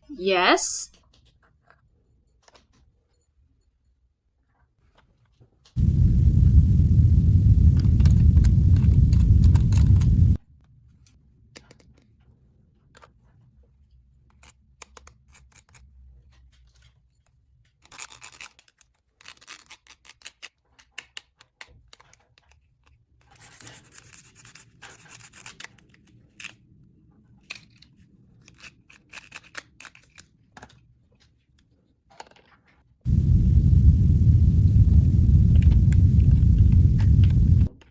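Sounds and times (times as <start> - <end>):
loud low rumbling: 5.8 - 10.4, 33.1 - 37.8.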